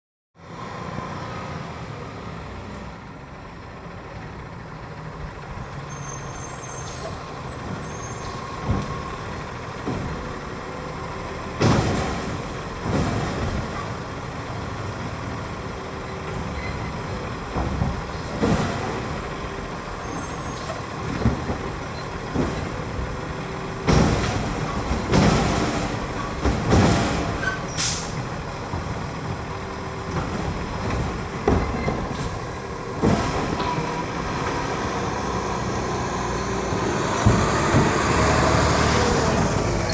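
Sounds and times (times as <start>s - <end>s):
garbage truck engine running: 3.0s - 39.9s
carts banging against hopper: 8.4s - 39.9s
air brake hiss: 27.7s - 28.2s.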